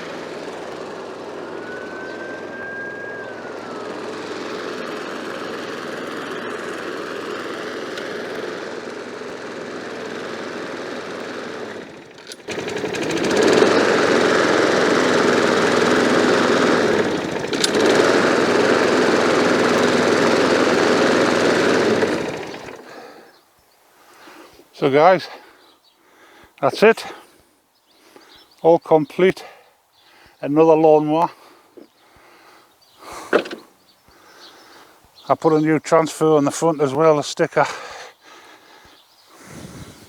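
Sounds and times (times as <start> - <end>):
lawn mower engine running: 0.0 - 23.4, 32.4 - 33.8.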